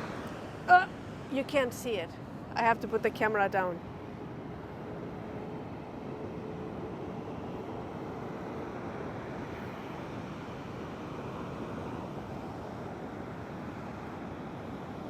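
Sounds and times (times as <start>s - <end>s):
ocean surf: 0.0s - 3.0s.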